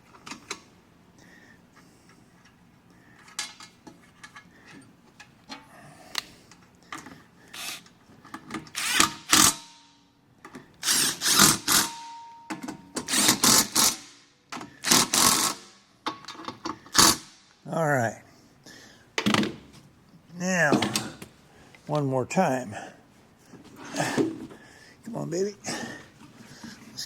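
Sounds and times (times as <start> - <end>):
cordless drill bursts: 7.6 - 7.8, 8.7 - 9.6, 10.8 - 12.0, 13.1 - 14.1, 14.8 - 15.7.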